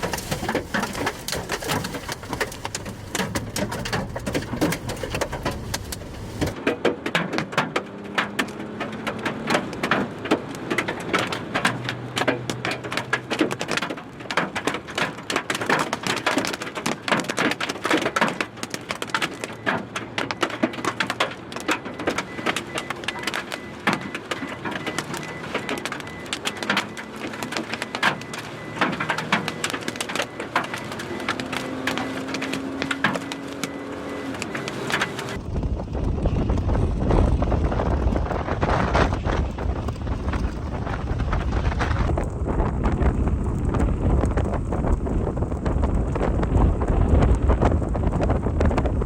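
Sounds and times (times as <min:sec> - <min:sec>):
hailstones pelting a vehicle: 0:00.0 - 0:49.0.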